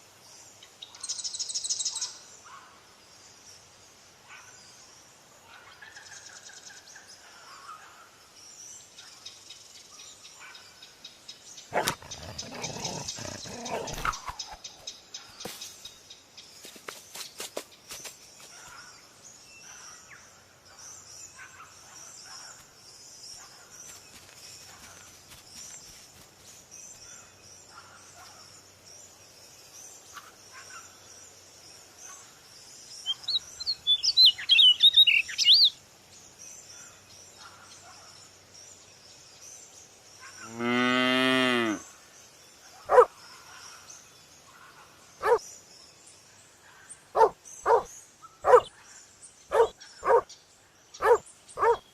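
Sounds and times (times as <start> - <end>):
insects hissing: 11.5 - 16.0
bird chirps: 11.6 - 15.8, 32.9 - 35.8, 42.8 - 45.6, 47.1 - 51.9
cow mooing: 11.7 - 14.2, 40.5 - 41.8
dog barking: 11.7 - 14.3, 42.9 - 43.1, 45.2 - 45.4, 47.2 - 48.7, 49.5 - 50.3, 51.0 - 51.8.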